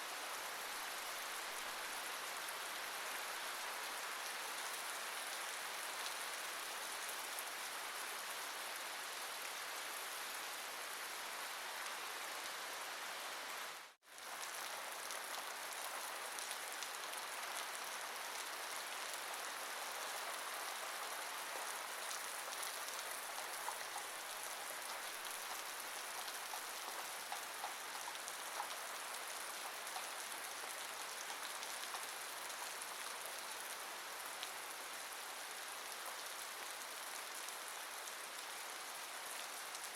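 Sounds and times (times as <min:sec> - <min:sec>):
steady rain hiss: 0:00.0 - 0:39.9
raindrop ticks: 0:22.1 - 0:24.2, 0:24.8 - 0:32.8.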